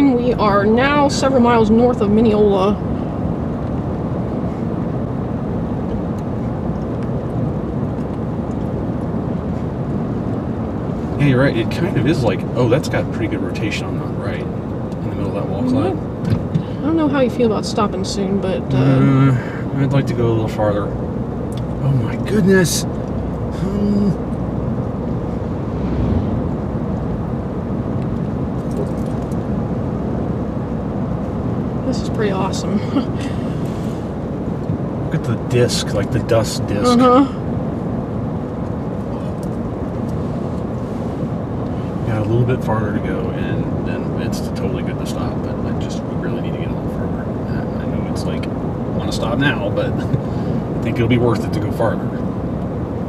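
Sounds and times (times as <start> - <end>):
car interior road noise: 0.0 - 53.0
person exclaiming: 36.8 - 37.3.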